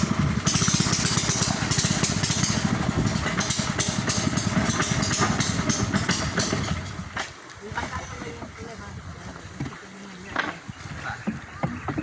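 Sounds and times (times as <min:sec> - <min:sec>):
boat engine chugging: 0:00.0 - 0:09.6.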